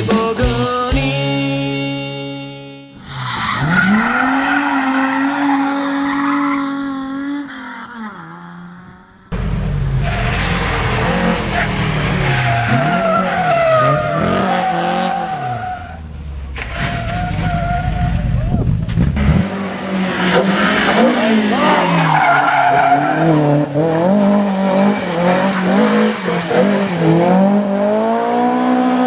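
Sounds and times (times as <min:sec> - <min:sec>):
rally car engine revving: 0:02.9 - 0:29.0
tyres squealing: 0:09.4 - 0:19.1, 0:21.2 - 0:27.0.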